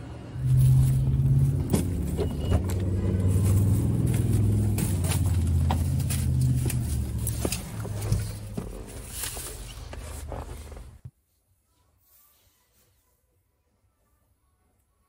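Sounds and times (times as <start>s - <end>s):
vehicle engine running: 0.0s - 11.1s.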